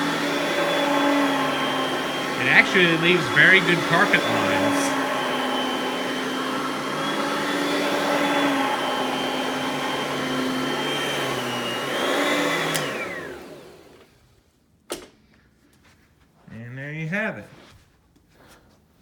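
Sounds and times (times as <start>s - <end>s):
vacuum cleaner running on carpet: 0.0s - 14.1s
vacuum motor winding down: 0.0s - 14.1s.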